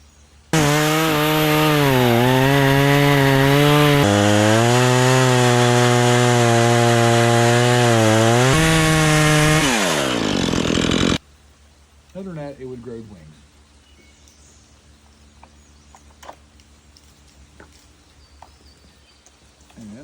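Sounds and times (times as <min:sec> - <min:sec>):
chainsaw cutting wood: 0:00.5 - 0:11.2.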